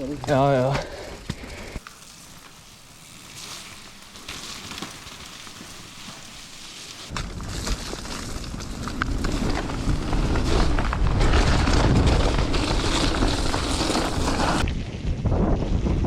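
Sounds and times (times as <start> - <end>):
bike clicks and rattles: 0.0 - 14.7
low bike rumble: 7.1 - 16.0
wind buffeting microphone: 8.5 - 16.0.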